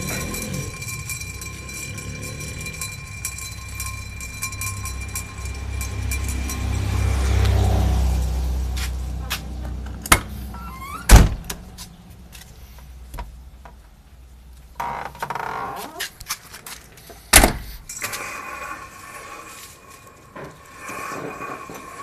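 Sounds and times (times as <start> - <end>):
car engine rumble: 0.0 - 15.4
rising squeak: 10.5 - 11.2.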